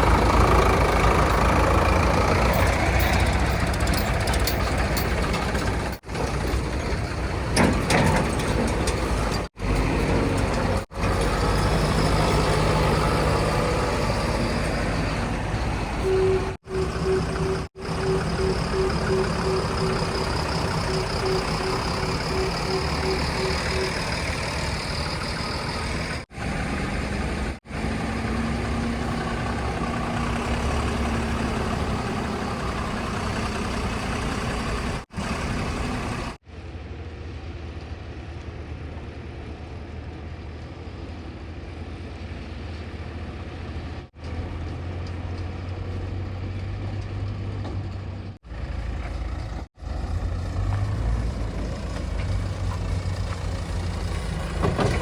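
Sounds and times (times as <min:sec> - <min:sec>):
heavy diesel engines running: 0:00.0 - 0:55.0
evenly spaced beeps: 0:16.2 - 0:24.7.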